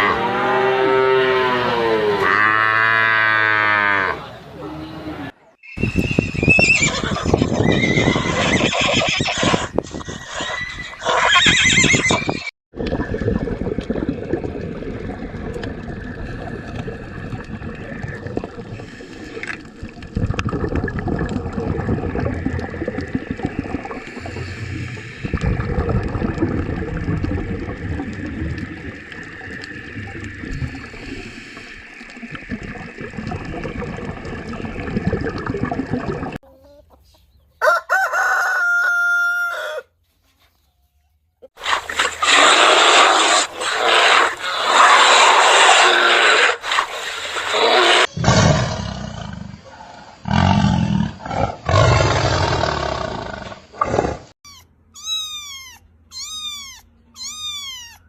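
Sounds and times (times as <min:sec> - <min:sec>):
horse whinnying: 0:06.2 - 0:12.5, 0:54.4 - 0:58.0.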